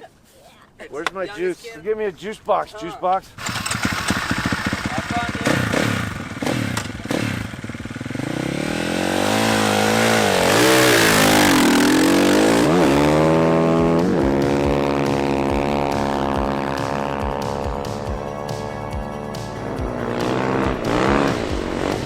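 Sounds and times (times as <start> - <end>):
dirtbike engine revving: 3.4 - 22.0
hissing rush: 16.7 - 22.0.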